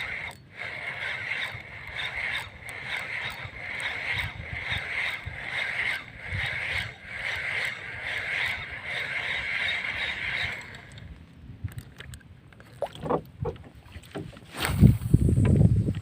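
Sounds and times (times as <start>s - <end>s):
wind rumble on microphone: 14.3s - 16.0s.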